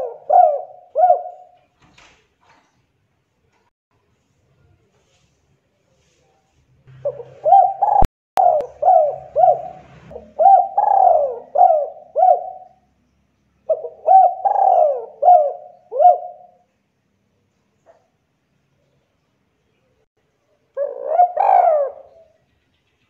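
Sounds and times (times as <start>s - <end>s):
dove cooing: 0.0s - 1.6s, 6.9s - 12.8s, 13.7s - 16.6s, 20.8s - 22.4s.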